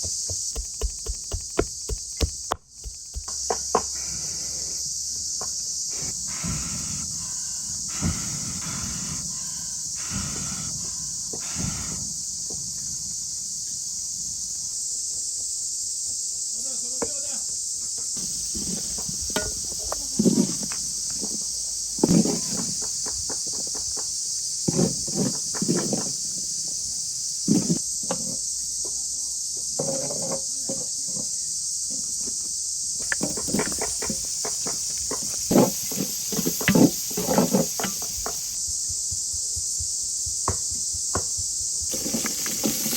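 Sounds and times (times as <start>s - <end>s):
sharp knocks: 0.0s - 3.6s
high-pitched insect chorus: 0.0s - 42.9s.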